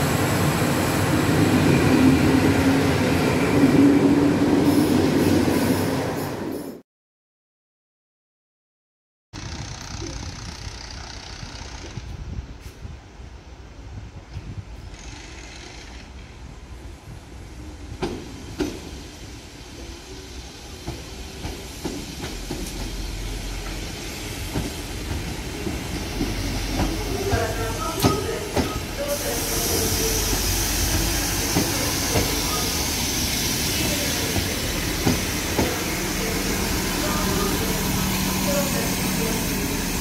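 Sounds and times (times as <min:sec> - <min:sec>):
diesel train pulling in: 0:00.0 - 0:06.8, 0:15.8 - 0:40.0
strong hiss: 0:16.8 - 0:40.0.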